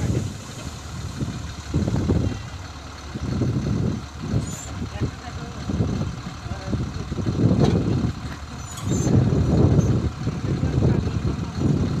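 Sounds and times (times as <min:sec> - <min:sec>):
combine harvester rumble: 0:00.0 - 0:12.0.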